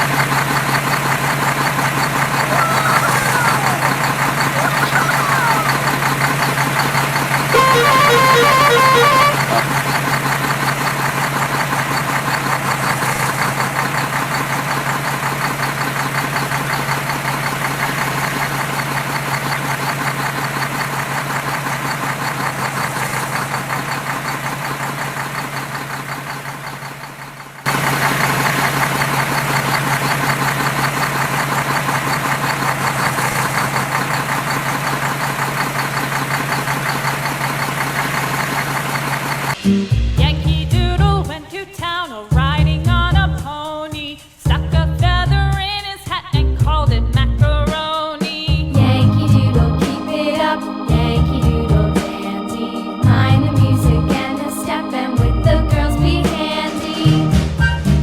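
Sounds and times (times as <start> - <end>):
vehicle engine running: 0.0 - 41.4, 48.4 - 50.0, 53.0 - 54.3, 55.2 - 56.4
horn beeping in quick pulses: 7.5 - 9.8.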